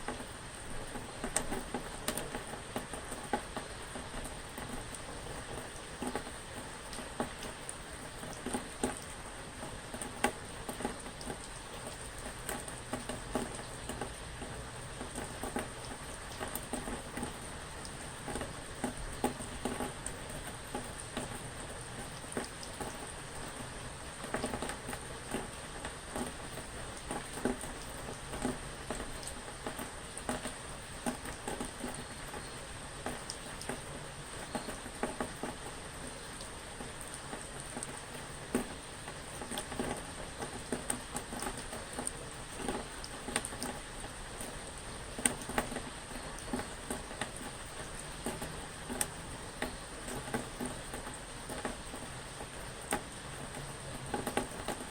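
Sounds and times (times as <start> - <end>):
rain pattering: 0.0 - 54.9.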